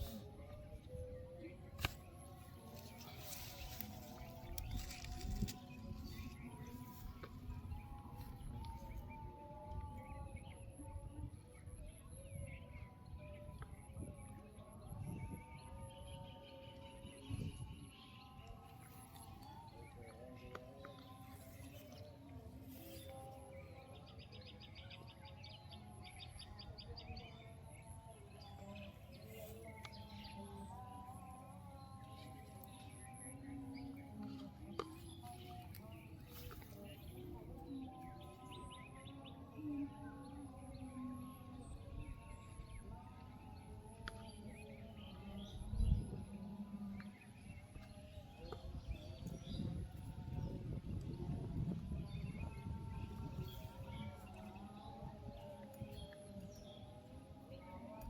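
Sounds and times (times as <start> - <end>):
small birds chirping: 0.0 - 9.7, 41.6 - 58.0
faint outdoor background noise: 0.0 - 58.0
small bird singing: 11.7 - 58.0.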